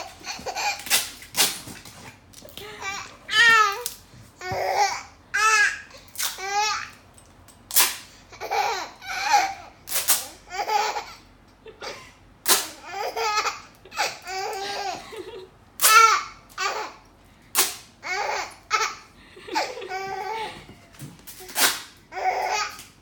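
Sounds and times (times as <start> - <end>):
baby laughing: 0.0 - 1.1, 8.3 - 17.0, 18.0 - 20.9
tape ripping off roll: 0.4 - 2.2, 12.5 - 12.8, 21.2 - 22.0.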